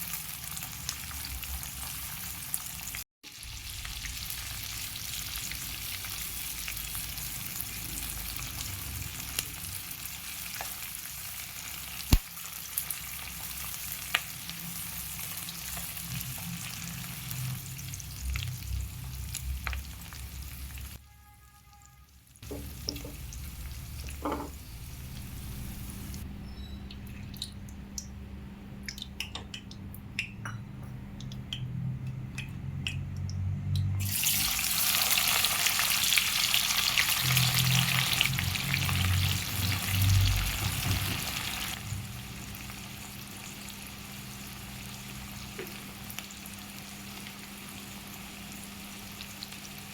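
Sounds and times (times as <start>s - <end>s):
food sizzling in oil: 0.0s - 21.0s, 22.4s - 26.2s, 34.0s - 49.9s
spoon scraping and tapping pan: 24.2s - 24.6s.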